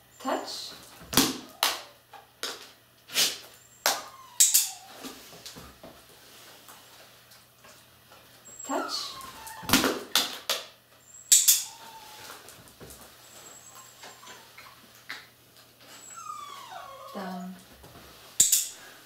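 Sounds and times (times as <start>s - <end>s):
dog whimpering: 3.6s - 5.0s, 8.4s - 10.1s, 11.1s - 12.5s, 13.2s - 14.9s, 15.8s - 17.6s.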